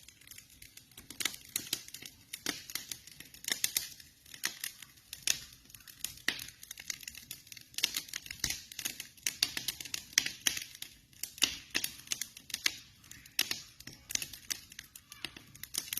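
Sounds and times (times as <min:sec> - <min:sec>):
campfire crackling: 0:00.0 - 0:15.9.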